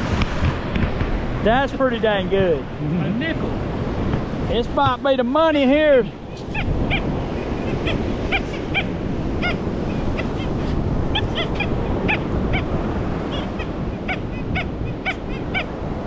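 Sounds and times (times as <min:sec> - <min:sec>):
surf: 0:00.0 - 0:16.0
wind: 0:00.0 - 0:16.0
metal detector chirping tones: 0:06.3 - 0:15.8.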